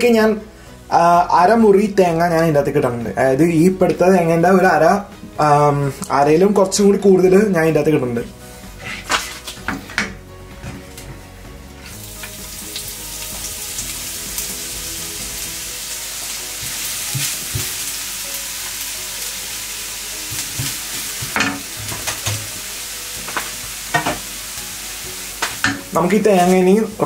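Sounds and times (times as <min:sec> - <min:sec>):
spatula scraping frying pan: 0:08.7 - 0:10.1
food sizzling in oil: 0:11.6 - 0:27.0.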